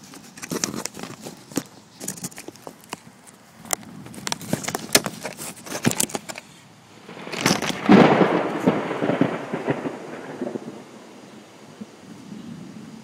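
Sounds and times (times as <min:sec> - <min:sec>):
thunder crack rumbling: 0:07.0 - 0:13.0.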